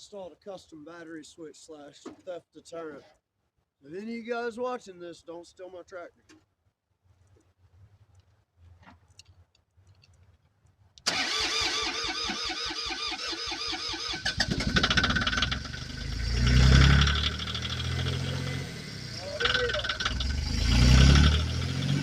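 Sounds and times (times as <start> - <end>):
tractor starter cranking: 11.0 - 18.2, 19.2 - 21.6
tractor engine running: 11.1 - 22.0.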